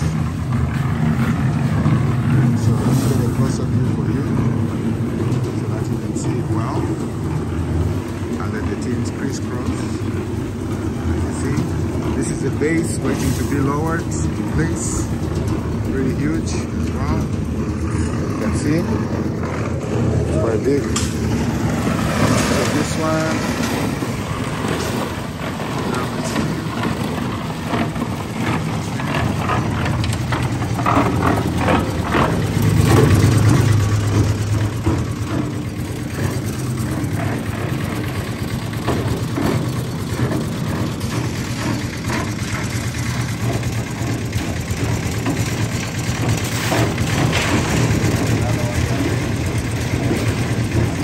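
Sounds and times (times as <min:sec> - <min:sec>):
building work knocks and clanks: 0:00.0 - 0:51.0
engine humming: 0:00.0 - 0:51.0.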